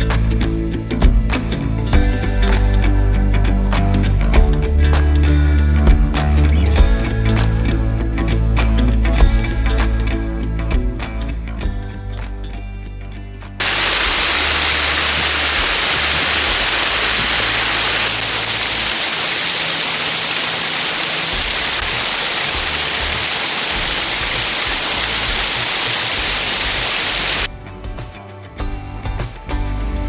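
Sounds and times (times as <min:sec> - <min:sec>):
small waterfall pouring: 0:13.6 - 0:27.5.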